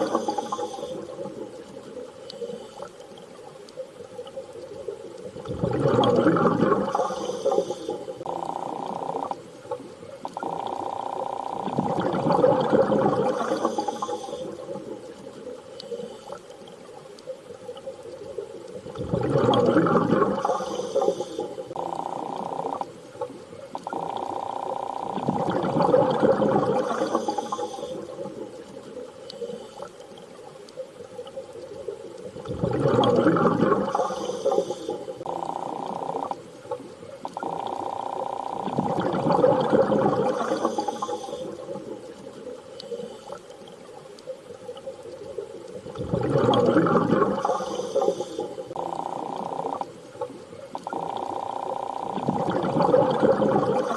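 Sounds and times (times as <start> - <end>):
whale-like tone: 5.4 - 9.7, 32.4 - 36.7, 45.9 - 53.9.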